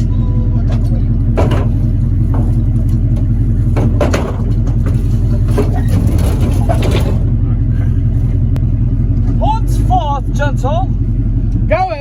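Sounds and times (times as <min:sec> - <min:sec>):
truck engine running: 0:00.0 - 0:12.0
sharp knocks and clatters: 0:00.7 - 0:07.3.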